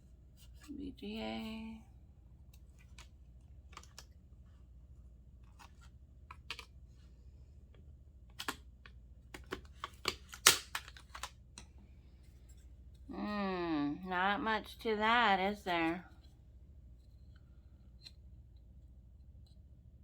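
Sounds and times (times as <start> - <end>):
small plastic parts clicking: 8.3 - 11.7.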